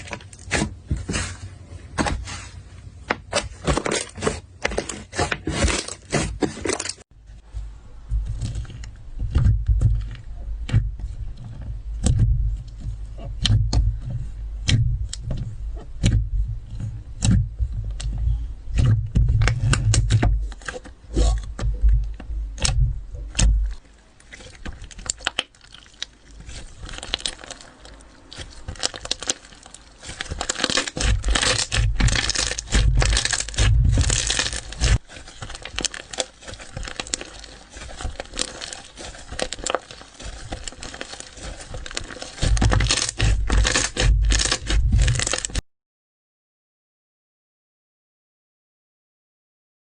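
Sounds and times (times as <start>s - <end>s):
slime squished by hand: 22.5s - 45.6s.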